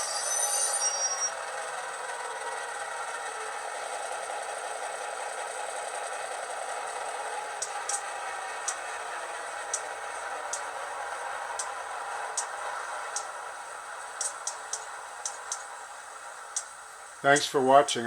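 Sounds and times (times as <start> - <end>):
diesel engine sound from tiny speakers: 0.0 - 18.0
sharp ticks: 7.6 - 8.9, 9.6 - 10.7, 11.5 - 13.4, 14.1 - 15.8, 16.5 - 18.0.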